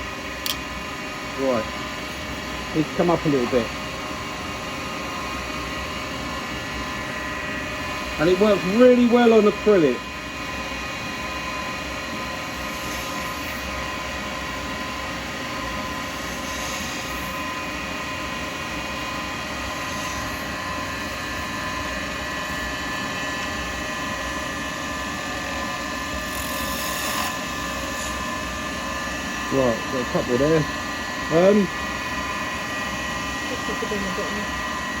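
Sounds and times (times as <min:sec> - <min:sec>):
lathe motor whine: 0:00.0 - 0:35.0
turning tool scraping: 0:26.3 - 0:28.2.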